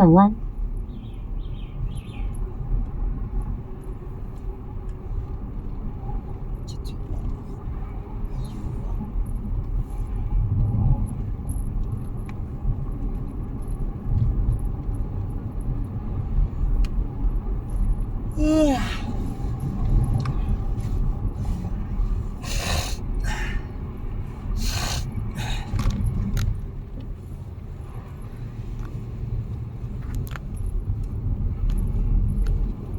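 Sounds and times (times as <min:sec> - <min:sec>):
car road rumble inside cabin: 0:00.0 - 0:32.9
short hissy bursts: 0:22.4 - 0:23.0, 0:24.6 - 0:25.1.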